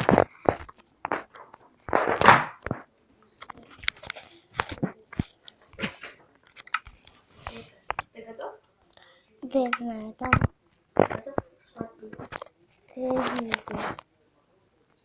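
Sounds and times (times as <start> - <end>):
rustling: 0.0 - 8.1, 10.4 - 14.1
close clicks: 3.4 - 7.2.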